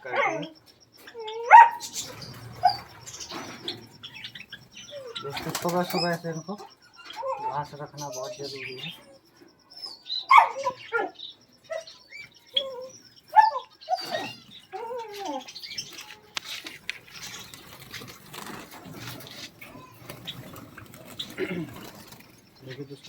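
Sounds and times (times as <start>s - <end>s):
caged birds chirping: 0.0s - 23.0s
rustling with clicks and flutters: 13.9s - 23.0s.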